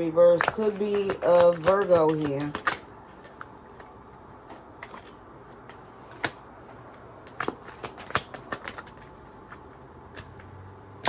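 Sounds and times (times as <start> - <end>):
cards snapping and flicking: 0.4 - 3.5, 7.2 - 10.3.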